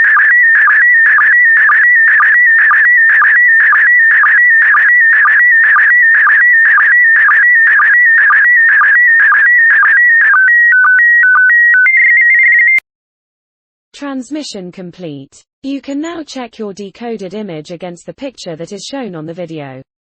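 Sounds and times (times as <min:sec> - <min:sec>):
stepped electronic beeps: 0:00.0 - 0:12.8
warbling sstv signal tones: 0:00.0 - 0:12.8.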